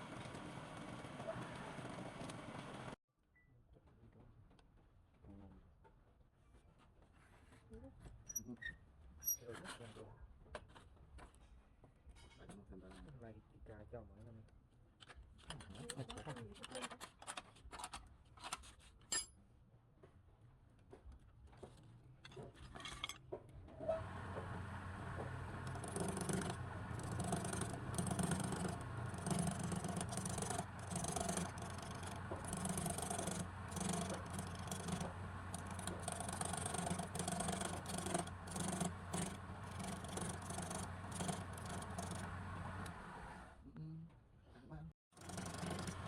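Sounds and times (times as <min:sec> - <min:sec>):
chisel scraping spinning wood: 0:23.8 - 0:43.4, 0:45.2 - 0:46.0
lathe motor hum: 0:24.0 - 0:43.5, 0:45.2 - 0:46.0.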